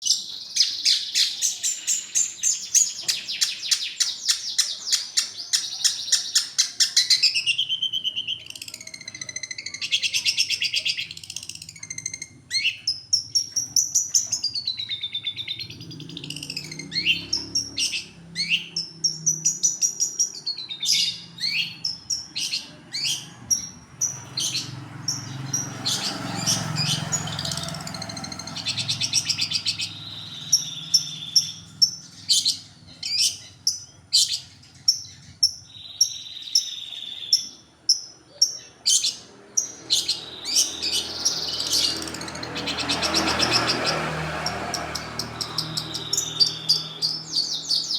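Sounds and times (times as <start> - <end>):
whistled bird notes: 0.0 - 37.6, 44.9 - 47.9
shrike rattling chatter: 8.3 - 14.5.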